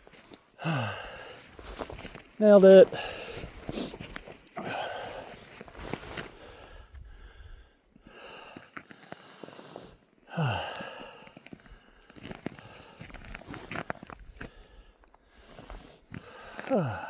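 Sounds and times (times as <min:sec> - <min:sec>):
man breathing hard: 0:00.5 - 0:02.0, 0:02.8 - 0:17.0
man sighing: 0:04.6 - 0:05.4, 0:10.3 - 0:11.0, 0:16.6 - 0:17.0.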